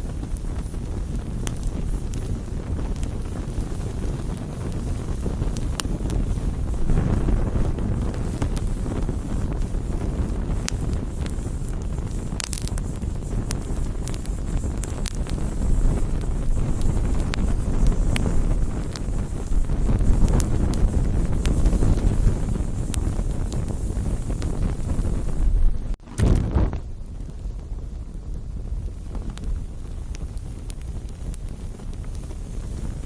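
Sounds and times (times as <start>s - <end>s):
campfire flames crackling: 0.0s - 33.0s.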